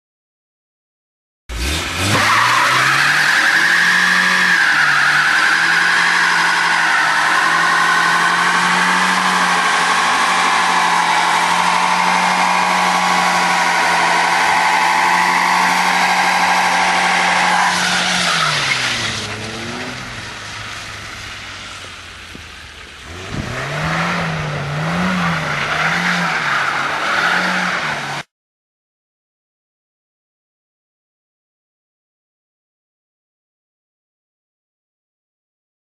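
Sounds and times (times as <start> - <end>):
vehicle engine revving: 1.5 - 28.3.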